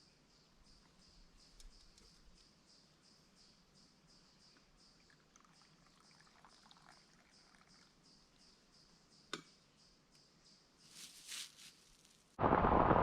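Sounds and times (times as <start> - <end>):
faint crackles: 10.9 - 13.0.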